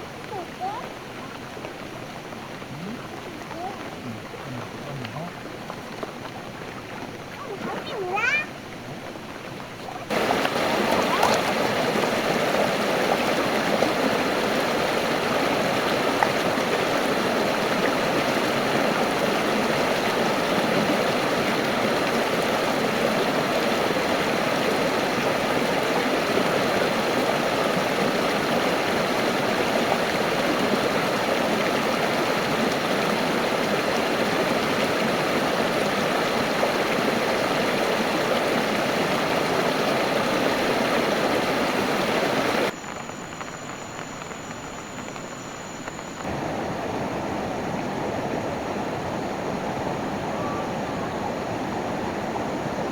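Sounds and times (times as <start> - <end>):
stream rushing over rocks: 0.0 - 52.9.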